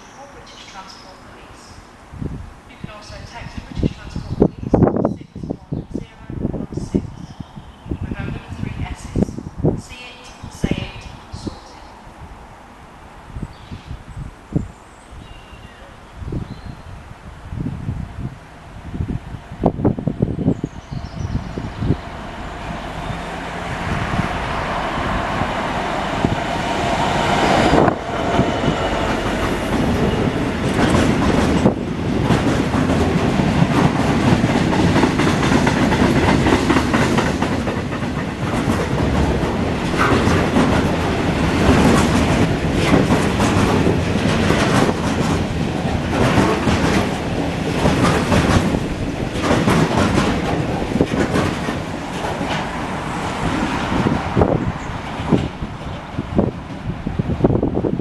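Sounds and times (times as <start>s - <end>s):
train wheels clicking over rail joints: 27.4s - 54.3s.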